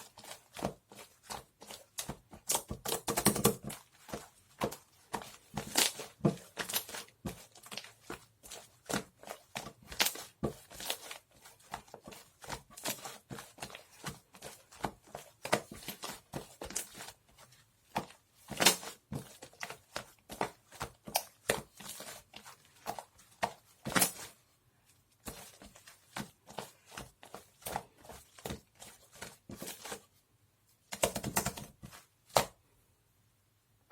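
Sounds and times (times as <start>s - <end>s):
handling clicks taps and crinkles: 0.1s - 24.4s, 30.8s - 32.6s.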